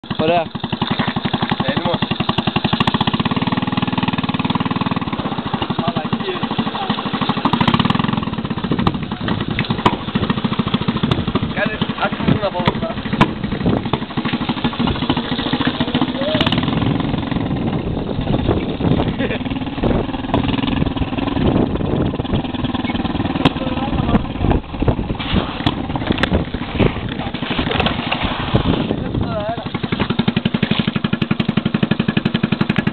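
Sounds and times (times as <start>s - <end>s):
motocross bike engine running: 0.0s - 32.9s
sharp knocks and rattles: 0.0s - 32.9s.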